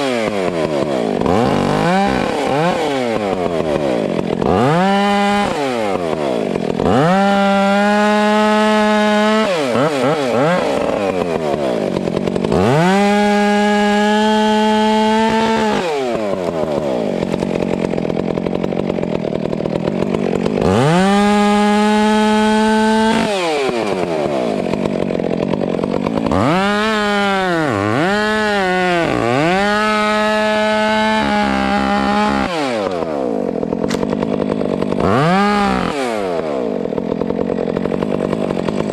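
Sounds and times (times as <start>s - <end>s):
chainsaw idling: 0.0s - 38.9s
chainsaw revving and cutting: 0.0s - 38.9s.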